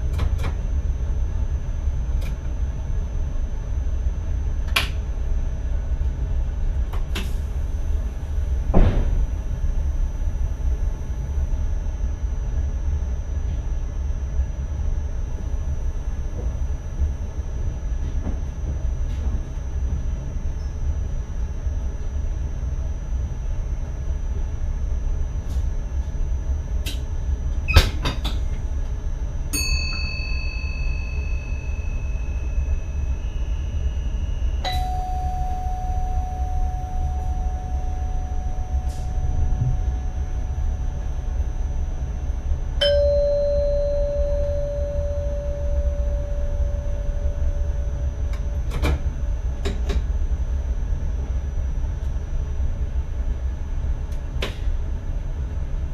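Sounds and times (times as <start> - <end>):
electric train low rumble: 0.0 - 55.9
ringing dings: 29.6 - 40.5, 42.8 - 47.9.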